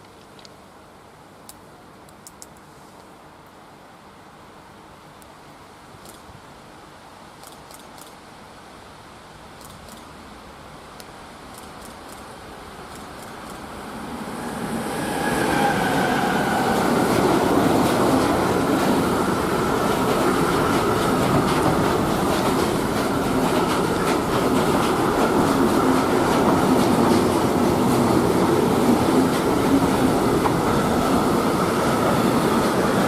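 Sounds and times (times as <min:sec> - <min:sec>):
train wheels rumbling on rails: 0:12.8 - 0:33.0.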